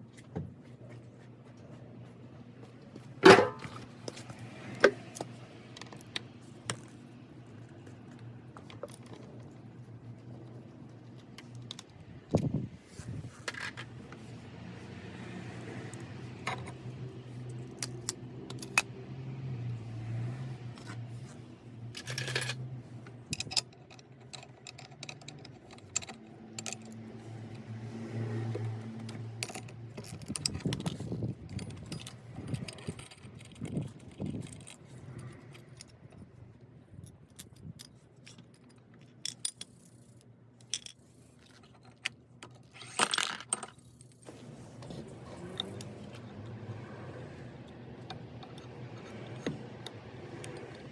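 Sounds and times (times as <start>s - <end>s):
metal tools clinking and scraping: 3.2s - 5.3s, 29.0s - 36.3s, 36.9s - 46.3s.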